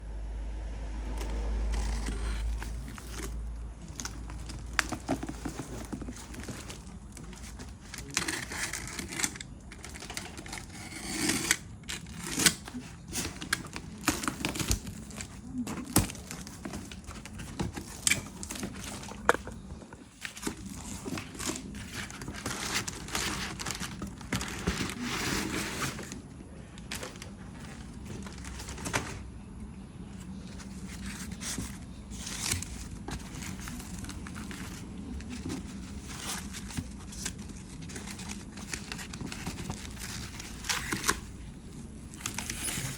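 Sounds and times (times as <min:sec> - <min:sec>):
plastic and paper crinkling: 0:01.2 - 0:29.2, 0:30.1 - 0:42.9.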